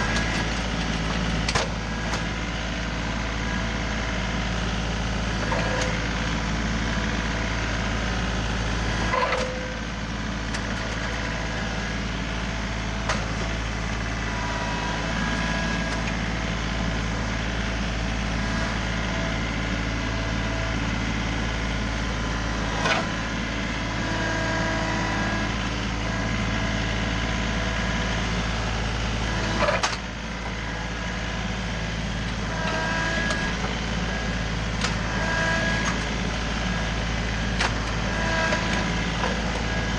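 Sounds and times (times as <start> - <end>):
tractor diesel engine running: 0.0 - 39.9
short metallic squeaks: 9.1 - 9.8.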